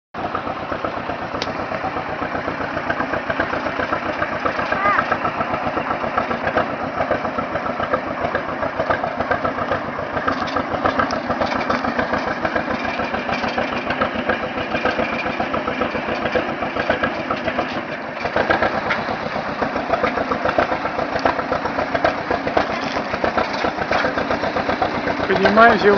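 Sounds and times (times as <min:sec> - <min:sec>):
small engine running: 0:00.2 - 0:25.9.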